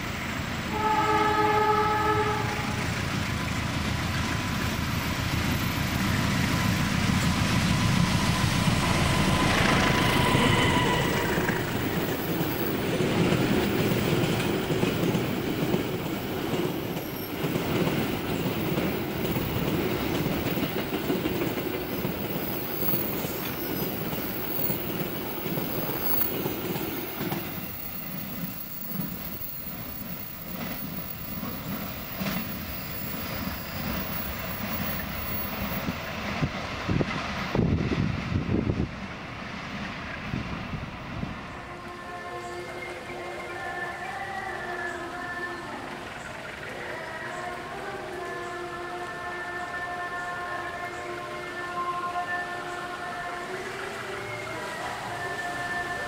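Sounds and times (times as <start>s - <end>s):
diesel locomotive engine: 0.0s - 56.0s
train horn: 0.7s - 3.0s, 7.4s - 12.4s, 41.5s - 45.9s, 46.8s - 56.0s.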